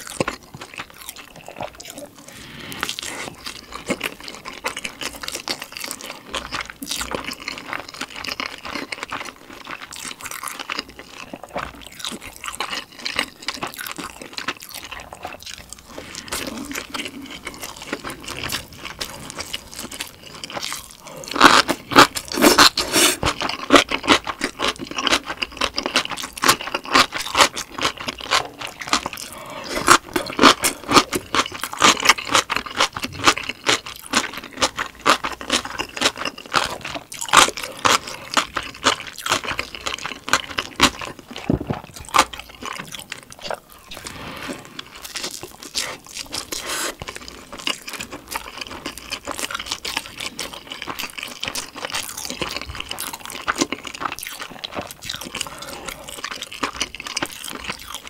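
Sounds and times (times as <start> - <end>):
crisp crunching: 0.0 - 58.0
soft chewing: 0.0 - 58.0.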